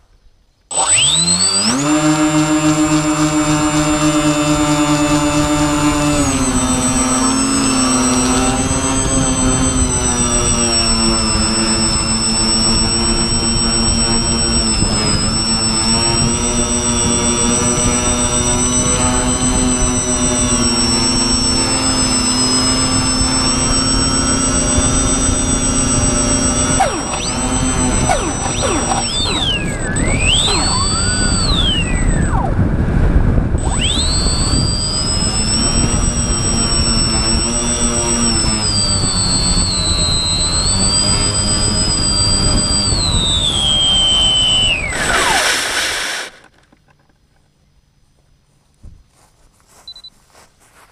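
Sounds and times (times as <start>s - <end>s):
model plane motors whining: 0.6s - 47.2s
wind rumble: 27.6s - 35.0s.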